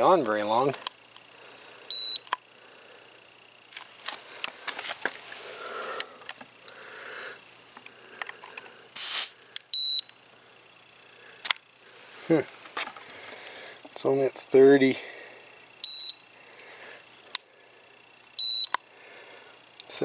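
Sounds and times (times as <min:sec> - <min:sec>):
gauge beep: 0:01.9 - 0:02.2, 0:09.8 - 0:10.1, 0:15.8 - 0:16.2, 0:18.4 - 0:18.8
tire valve hissing: 0:09.0 - 0:09.4.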